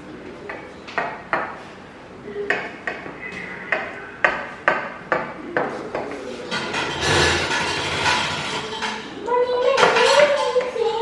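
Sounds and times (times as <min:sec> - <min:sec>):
cutlery clinking on dishware: 0:06.5 - 0:10.8.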